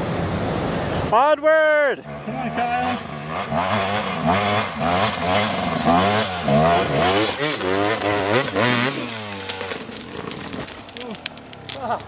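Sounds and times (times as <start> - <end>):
dirt bike revving: 2.0 - 10.0
wheels knocking on rock: 6.4 - 12.0.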